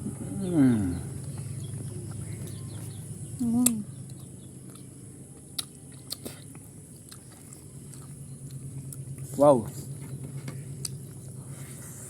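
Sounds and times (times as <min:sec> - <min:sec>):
steady low hum: 0:00.0 - 0:12.0
person eating: 0:05.5 - 0:09.1.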